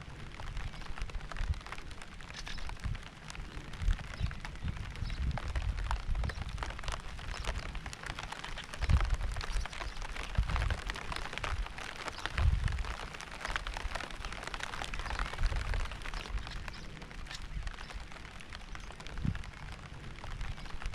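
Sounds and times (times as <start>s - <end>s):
rain pattering: 0.0s - 20.9s.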